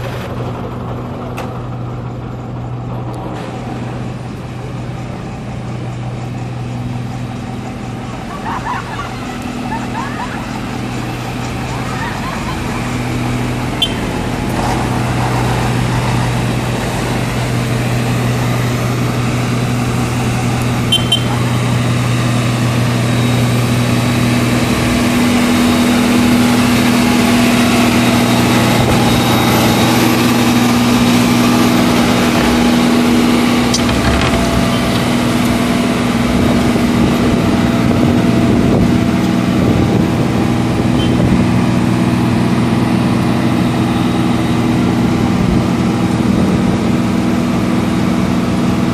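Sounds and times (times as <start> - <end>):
machinery engine running: 0.0 - 48.9.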